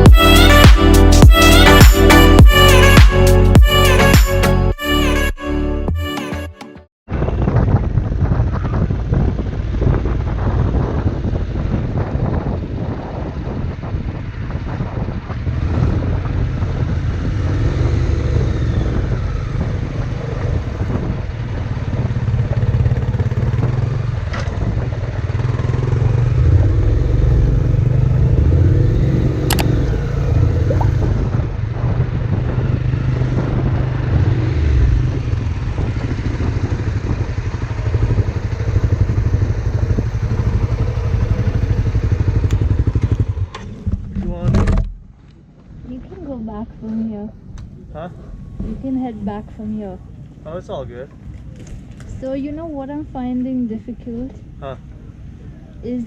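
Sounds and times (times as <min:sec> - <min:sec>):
motorcycle engine running: 0:07.1 - 0:56.0
wind and road noise: 0:07.1 - 0:56.0
sharp clicks: 0:29.5 - 0:29.7.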